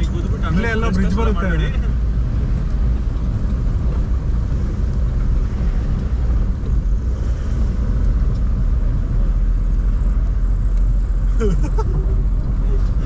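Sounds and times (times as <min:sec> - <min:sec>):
pickup truck driving: 0:00.0 - 0:13.0.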